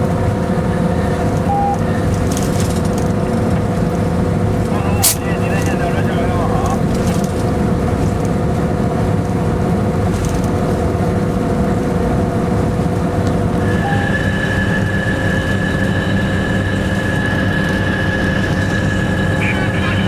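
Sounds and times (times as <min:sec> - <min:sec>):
locomotive cab rumble: 0:00.0 - 0:20.0
high steady whine: 0:13.5 - 0:20.0.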